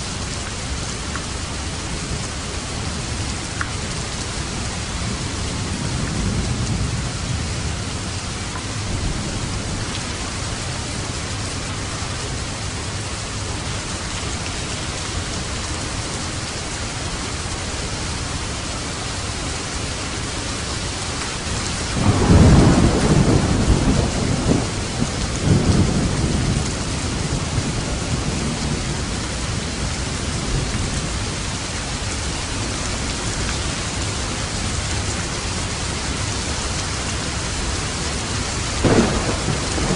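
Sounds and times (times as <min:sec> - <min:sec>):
heavy rain: 0:00.0 - 0:39.9
thunder rumbling: 0:21.4 - 0:31.3, 0:37.2 - 0:39.9.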